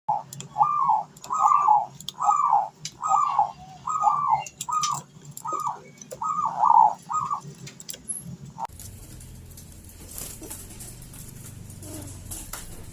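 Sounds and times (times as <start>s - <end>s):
dove cooing: 0.1s - 7.6s, 11.6s - 12.9s
faint high clicks and chirps: 4.0s - 8.7s.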